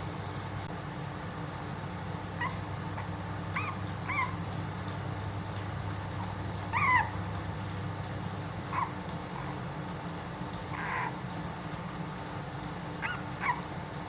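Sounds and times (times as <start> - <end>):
steady low hum: 0.0 - 14.0
puppies whimpering: 2.4 - 4.5, 6.2 - 7.3, 8.7 - 9.6, 10.7 - 11.2, 13.0 - 13.8.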